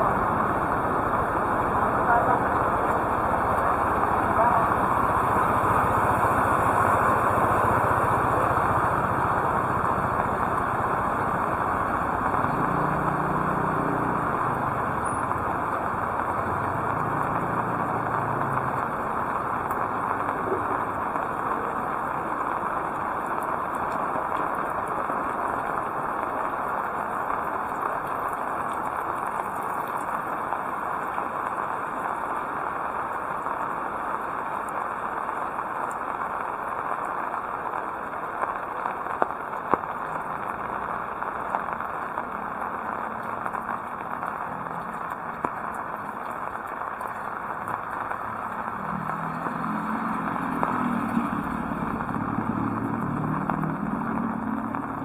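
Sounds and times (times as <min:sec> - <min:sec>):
vehicle engine hum: 0:00.0 - 0:26.0, 0:40.0 - 0:55.0
heavy rain hissing: 0:00.0 - 0:55.0.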